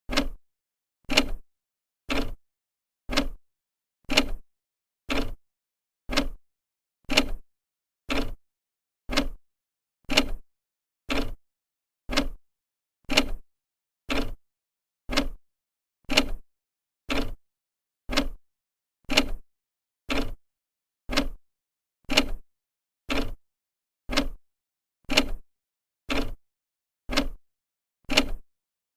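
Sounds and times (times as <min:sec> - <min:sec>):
clock ticking: 0:00.1 - 0:00.4, 0:02.1 - 0:02.4, 0:03.1 - 0:03.4, 0:05.1 - 0:05.4, 0:06.1 - 0:06.4, 0:07.1 - 0:07.4, 0:08.1 - 0:08.4, 0:09.1 - 0:09.4, 0:11.1 - 0:11.4, 0:12.1 - 0:12.4, 0:14.1 - 0:14.4, 0:15.1 - 0:15.4, 0:17.1 - 0:17.4, 0:18.1 - 0:18.4, 0:20.1 - 0:20.4, 0:21.1 - 0:21.4, 0:23.1 - 0:23.4, 0:24.1 - 0:24.4, 0:26.1 - 0:26.4, 0:27.1 - 0:27.4, 0:28.1 - 0:28.4.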